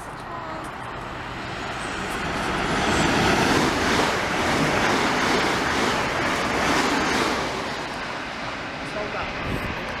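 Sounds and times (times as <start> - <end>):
train passing at speed: 0.0 - 10.0.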